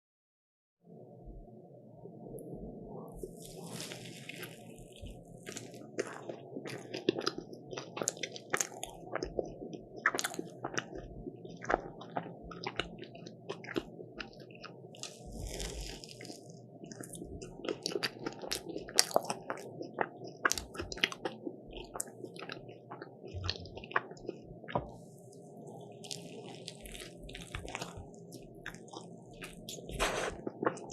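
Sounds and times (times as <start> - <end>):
crackly bites and crunchy chewing: 3.3 - 25.0, 25.8 - 30.9.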